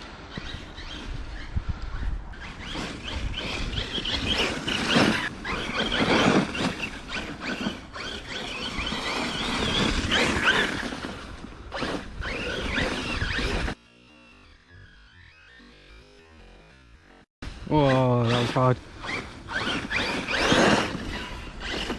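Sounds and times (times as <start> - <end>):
electric motor whine: 11.7 - 17.6.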